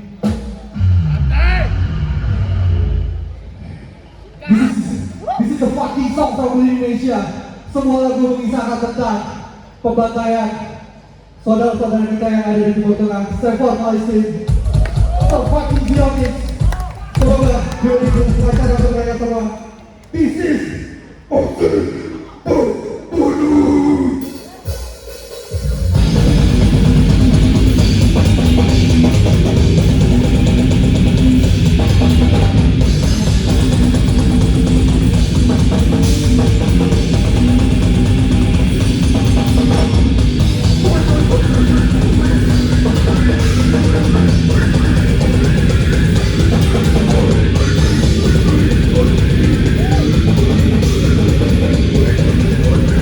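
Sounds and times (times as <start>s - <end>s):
metal band playing live: 25.6s - 53.0s.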